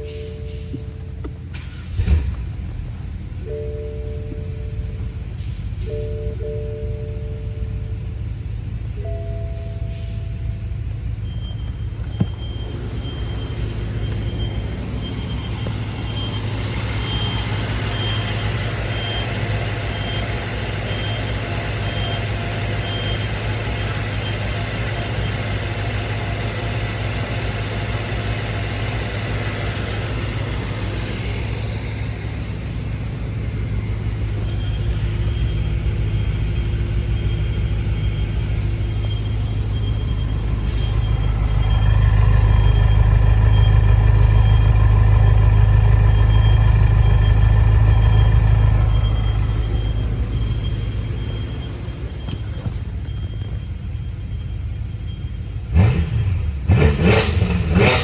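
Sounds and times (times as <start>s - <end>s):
car engine idling: 0.0s - 58.0s
high beep: 11.2s - 23.3s.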